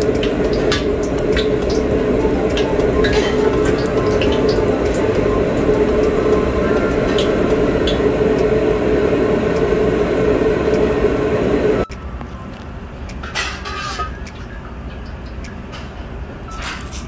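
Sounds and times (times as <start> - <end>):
gas burner roaring: 0.0 - 11.9
metal scrape: 13.4 - 14.1.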